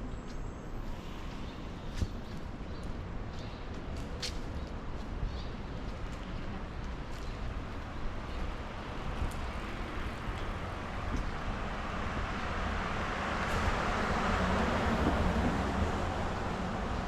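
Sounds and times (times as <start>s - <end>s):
low traffic rumble: 0.0s - 17.0s
vehicle passing with tyre hiss: 9.0s - 17.0s.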